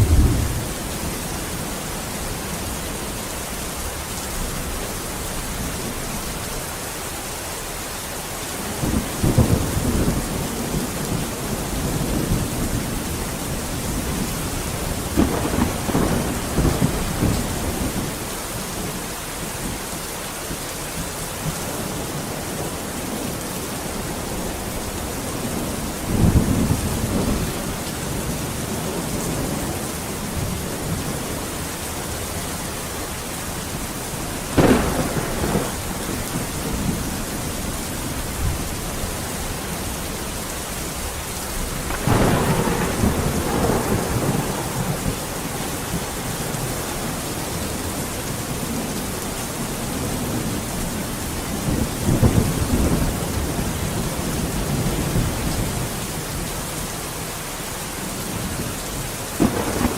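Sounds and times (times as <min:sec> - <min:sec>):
sharp thunder clap: 0:00.0 - 0:00.9, 0:14.0 - 0:18.1, 0:34.5 - 0:37.0, 0:41.6 - 0:47.7, 0:59.4 - 0:59.9
thunder rumbling: 0:00.0 - 0:03.0, 0:08.7 - 0:19.1, 0:33.0 - 0:55.9, 0:59.4 - 0:59.9
heavy rain: 0:00.0 - 0:59.9.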